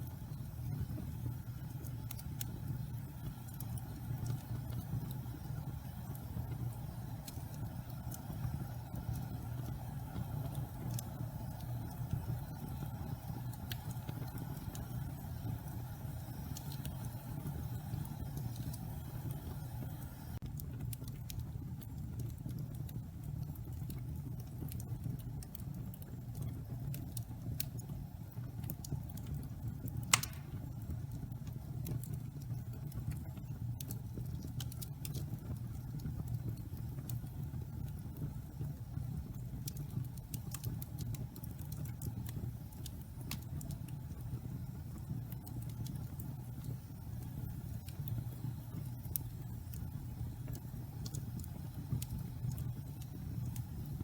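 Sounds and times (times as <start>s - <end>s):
fire rumbling: 0.0s - 54.0s
logs crackling: 30.1s - 30.7s
loud sharp pop of fire: 30.1s - 30.7s.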